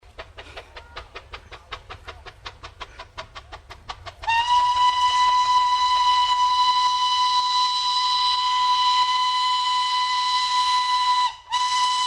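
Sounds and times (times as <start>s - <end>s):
steam locomotive beats: 0.0s - 12.0s
steam whistle blast: 4.2s - 12.0s.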